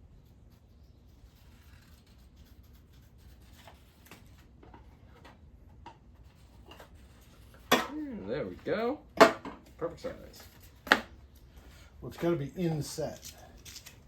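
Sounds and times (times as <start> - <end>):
low room hum: 0.0 - 14.0
scissors snipping paper: 13.1 - 14.0.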